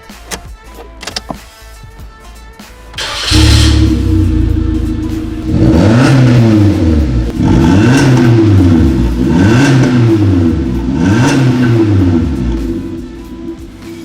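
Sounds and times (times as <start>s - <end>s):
car engine revving: 3.0s - 14.0s.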